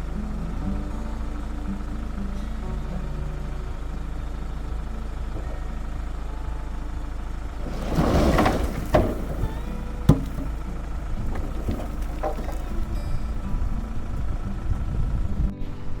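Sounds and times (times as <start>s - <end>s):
heavy diesel engine running: 0.0s - 15.5s
rush of clattering noise: 7.5s - 13.0s.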